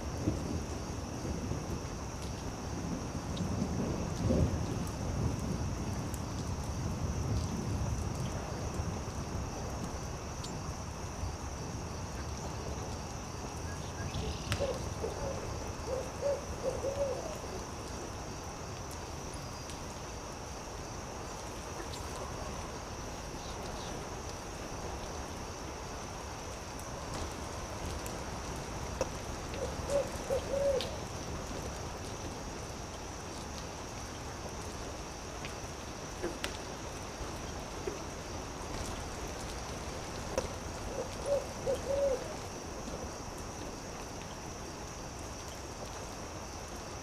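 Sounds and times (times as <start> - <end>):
owl hooting: 14.2 - 17.4, 29.6 - 31.0, 40.9 - 42.4.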